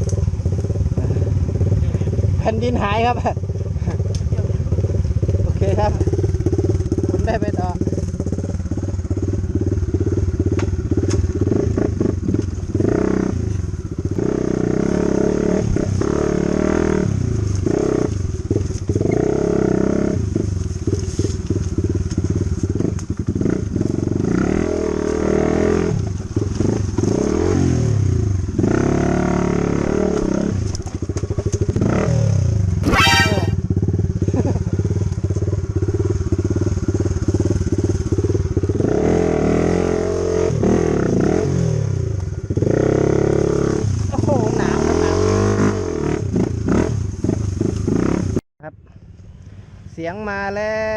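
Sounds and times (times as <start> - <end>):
dirt bike engine revving: 0.0 - 35.0, 35.6 - 48.4
shrill squeal: 32.8 - 33.6.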